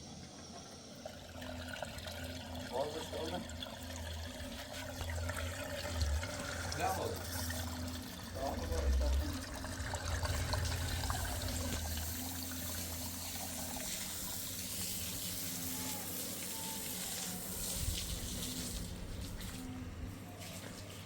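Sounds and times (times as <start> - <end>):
water running: 0.8 - 21.0
low hum: 3.9 - 14.4.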